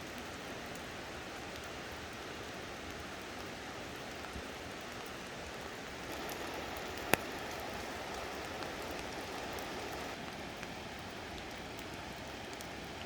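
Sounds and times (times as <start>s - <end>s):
rain patter: 0.0s - 13.0s
water dripping from branches: 0.0s - 13.0s.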